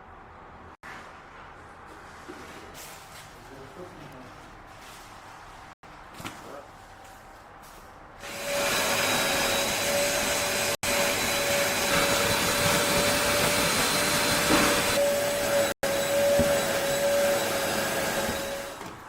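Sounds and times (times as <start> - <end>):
vacuum cleaner running: 8.2 - 19.0.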